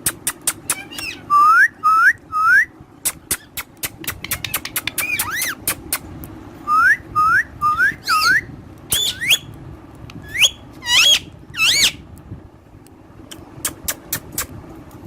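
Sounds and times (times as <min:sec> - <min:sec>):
parrot whistling: 0:00.6 - 0:02.7, 0:04.2 - 0:05.6, 0:06.7 - 0:09.5, 0:10.2 - 0:12.0.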